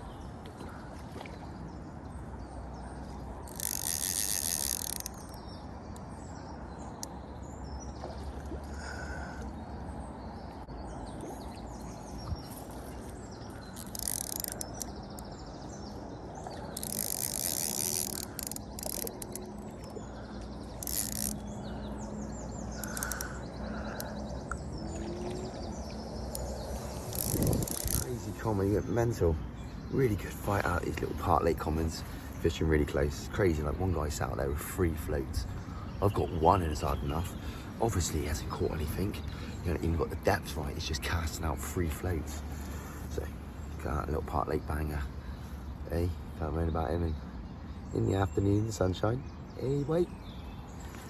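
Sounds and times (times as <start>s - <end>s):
birds chirping: 0.0s - 51.0s
outdoor background noise: 0.0s - 51.0s
fishing reel drag clicking: 3.4s - 5.5s, 13.6s - 15.4s, 16.7s - 20.1s, 20.7s - 21.6s, 22.7s - 24.1s, 26.3s - 28.3s.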